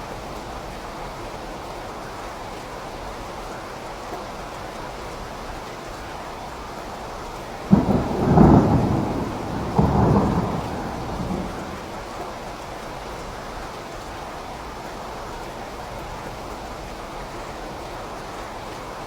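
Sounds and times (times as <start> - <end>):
steady rain: 0.0 - 19.0
thunder cracking and rumbling: 7.7 - 12.5.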